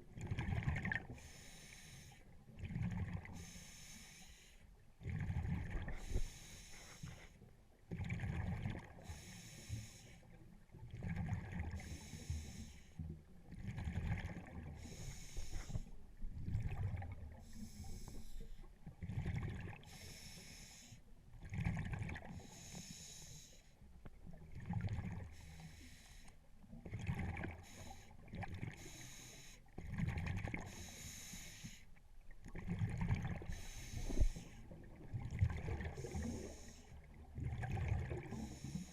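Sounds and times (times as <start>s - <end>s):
exhaled air bubbling: 0.0s - 1.2s, 5.0s - 6.3s, 7.9s - 9.2s, 13.5s - 20.2s, 32.2s - 38.9s
regulator inhale hiss: 1.2s - 2.2s, 3.3s - 4.6s, 6.0s - 7.4s, 9.0s - 10.3s, 11.8s - 13.0s, 14.8s - 16.0s, 17.4s - 18.7s, 19.9s - 21.0s, 22.3s - 23.8s, 25.3s - 26.4s, 27.6s - 28.2s, 28.8s - 29.7s, 30.7s - 31.9s, 33.4s - 34.7s, 35.9s - 37.0s, 38.3s - 38.9s.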